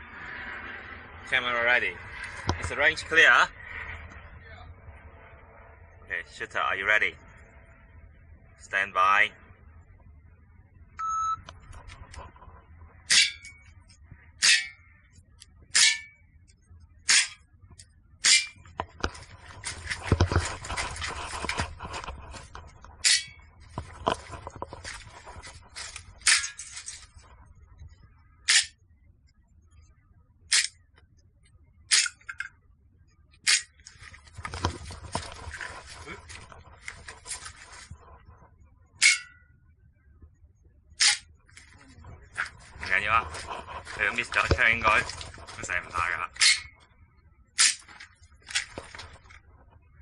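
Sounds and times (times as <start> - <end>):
shot timer beep: 11.0 - 11.5
rustling noise: 11.5 - 13.0, 18.6 - 28.1, 33.7 - 38.6, 41.4 - 46.4, 47.8 - 49.9.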